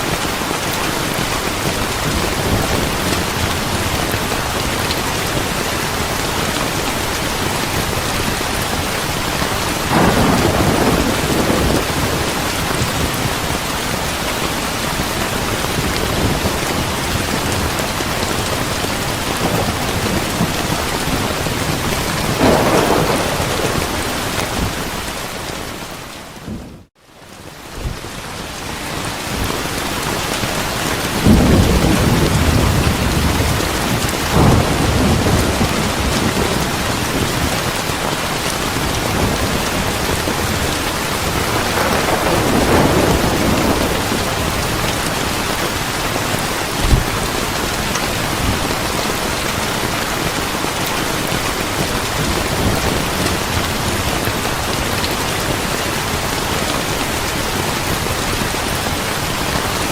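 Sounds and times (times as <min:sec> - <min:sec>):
thunder rumbling: 0:00.0 - 0:26.9, 0:30.6 - 0:50.3
heavy rain: 0:00.0 - 0:59.9.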